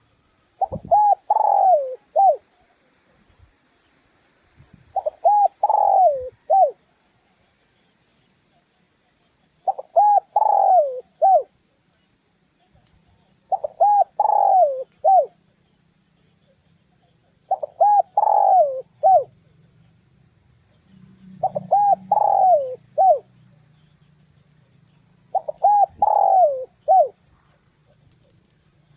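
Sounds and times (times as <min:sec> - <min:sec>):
dove cooing: 0:00.6 - 0:02.6, 0:04.9 - 0:06.8, 0:09.6 - 0:11.5, 0:13.4 - 0:15.4, 0:17.0 - 0:19.4, 0:21.2 - 0:23.9, 0:25.2 - 0:28.9.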